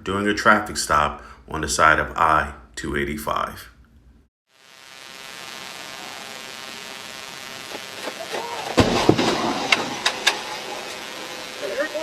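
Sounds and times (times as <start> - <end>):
car collision bangs and clatter: 8.8 - 10.6.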